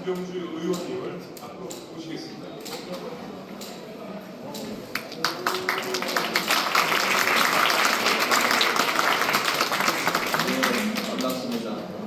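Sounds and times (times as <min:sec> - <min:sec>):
audience applauding: 0:04.9 - 0:11.7.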